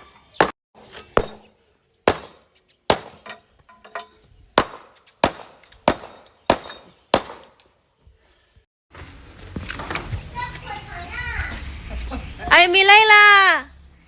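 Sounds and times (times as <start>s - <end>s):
debris rattling: 0.8s - 1.5s, 2.1s - 7.6s
sharp demolition blows: 2.1s - 3.3s, 4.6s - 7.6s.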